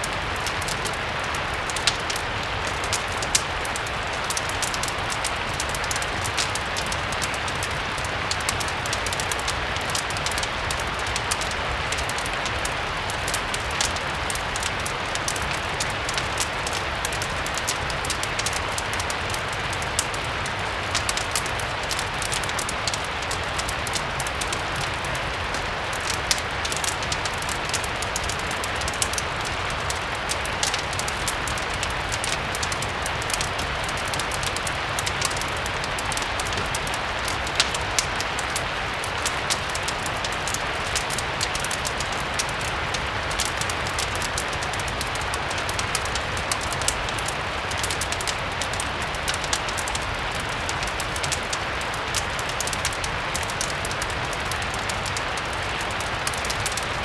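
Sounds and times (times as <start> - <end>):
fireplace crackling: 0.0 - 57.0
rain hissing: 0.0 - 57.0.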